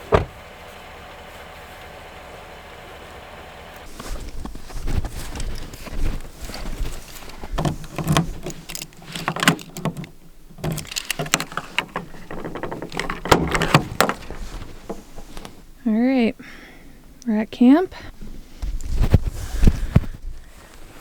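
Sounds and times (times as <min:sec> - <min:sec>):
clunks and knocks: 0:00.0 - 0:00.5, 0:03.9 - 0:15.6
rustling: 0:03.8 - 0:15.8, 0:18.2 - 0:21.0.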